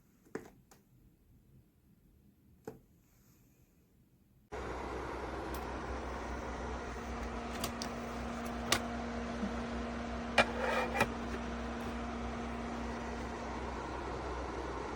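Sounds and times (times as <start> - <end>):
air purifier fan whooshing: 4.5 - 14.9
steady hum: 4.5 - 14.9.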